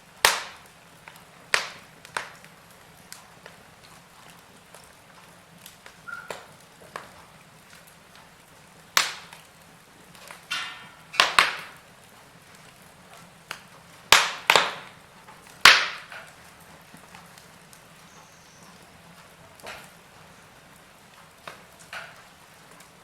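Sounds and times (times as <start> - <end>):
fire hissing: 0.0 - 23.0
wood fire crackling: 0.0 - 23.0.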